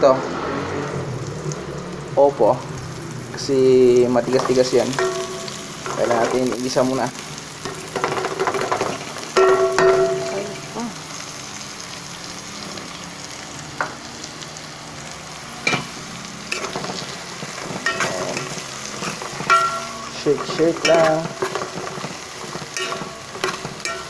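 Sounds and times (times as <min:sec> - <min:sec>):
food sizzling in hot oil: 0:00.3 - 0:24.0
loud metal clank: 0:04.4 - 0:06.4, 0:07.6 - 0:10.5, 0:17.6 - 0:21.9, 0:22.8 - 0:24.0.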